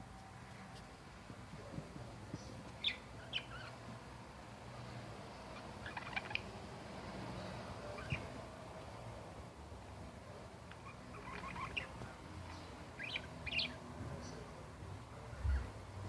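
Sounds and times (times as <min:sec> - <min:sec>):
budgerigars chirping: 0:02.8 - 0:03.8, 0:05.5 - 0:06.6, 0:07.9 - 0:08.4, 0:10.7 - 0:13.8.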